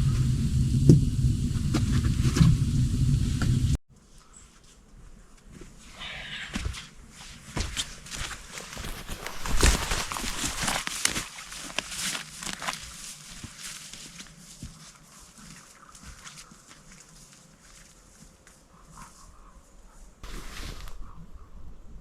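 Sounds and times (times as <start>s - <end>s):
irregular rustling: 7.6s - 21.4s.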